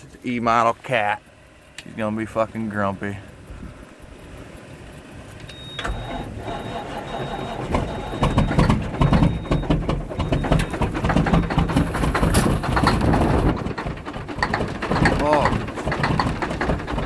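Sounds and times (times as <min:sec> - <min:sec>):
diesel engine cranking and firing: 0:00.0 - 0:17.0.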